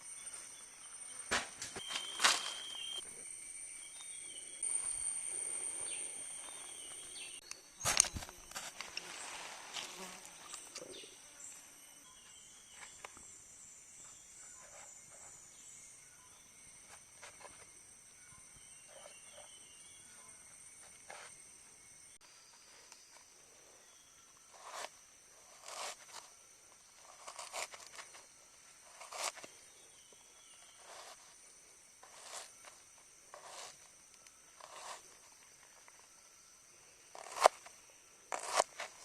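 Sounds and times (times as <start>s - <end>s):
insects buzzing and trilling: 0.0s - 39.0s.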